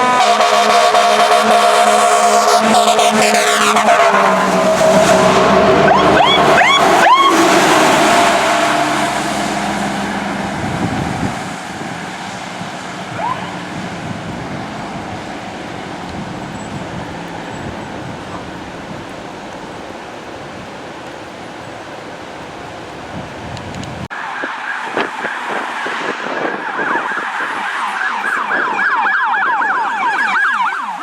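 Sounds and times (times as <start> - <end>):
fire truck siren whoops: 0.0 - 19.4, 24.1 - 31.0
background traffic: 0.0 - 31.0
fire truck engine: 0.0 - 31.0.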